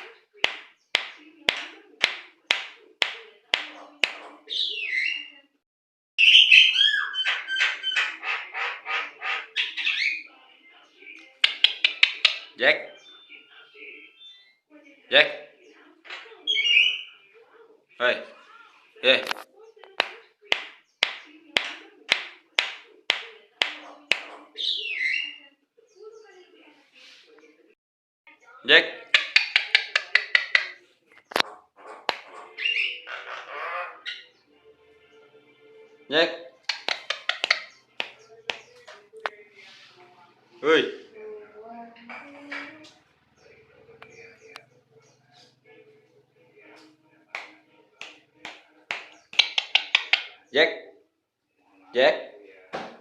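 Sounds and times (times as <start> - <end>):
bird clicking and whistling: 11.4 - 12.6, 29.2 - 30.8, 36.6 - 38.7, 49.0 - 50.4.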